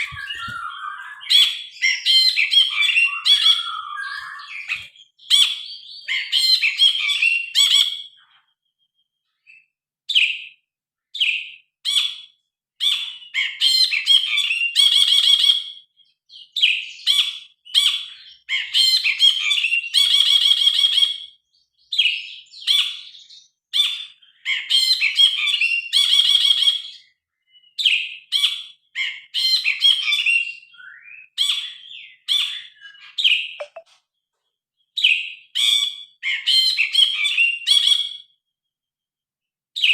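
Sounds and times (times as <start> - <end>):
bulbul singing: 0.0 - 6.0, 33.6 - 33.8.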